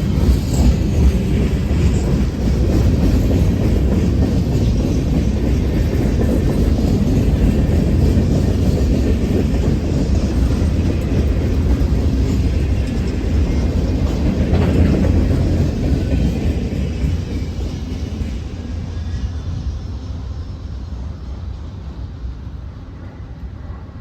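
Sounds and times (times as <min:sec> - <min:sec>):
freight train rumbling on rails: 0:00.0 - 0:24.0.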